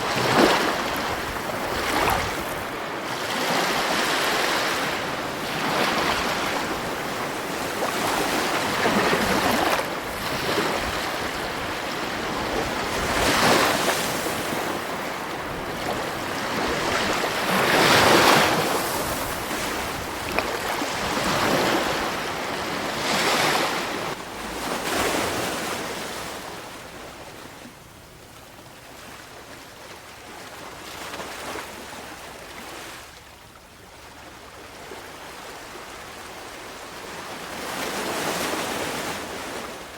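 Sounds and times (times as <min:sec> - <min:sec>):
sea waves washing onto shore: 0:00.0 - 0:27.0.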